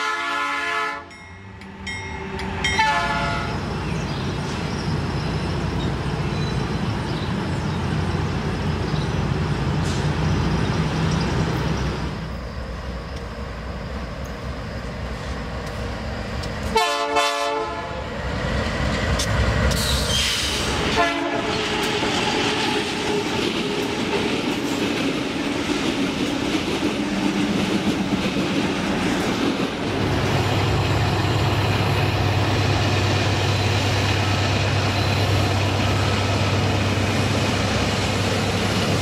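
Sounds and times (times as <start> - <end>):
diesel locomotives rumbling: 0.0 - 39.0
train wheels clattering on rails: 18.5 - 39.0.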